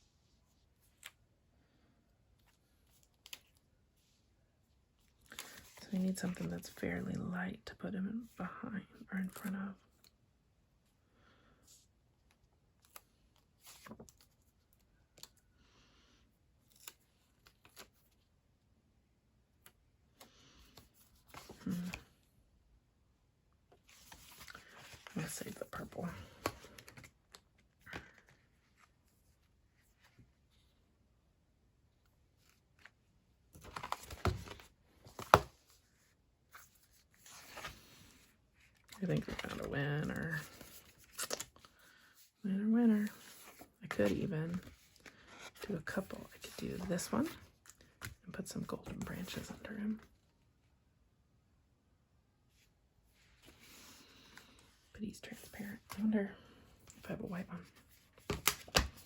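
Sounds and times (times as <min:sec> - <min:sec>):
paper rustling: 0:33.5 - 0:35.8, 0:36.5 - 0:42.0.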